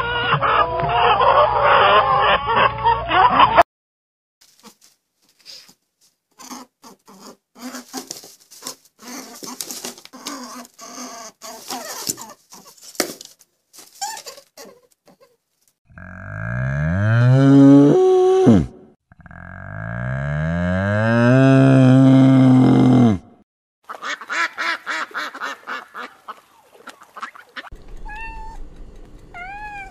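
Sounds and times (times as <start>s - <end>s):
faint crackling and rustling: 4.4s - 6.6s, 7.8s - 10.8s
cow mooing: 15.9s - 23.2s.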